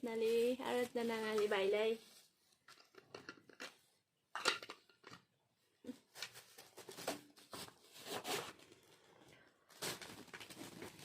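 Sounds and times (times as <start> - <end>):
wrapping paper rustling and tearing: 6.0 - 11.0.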